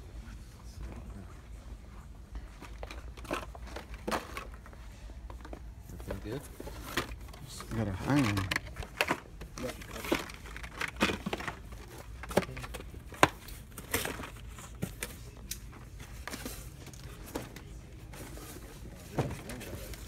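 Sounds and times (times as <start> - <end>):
packaging rustling and crinkling: 5.4 - 20.0.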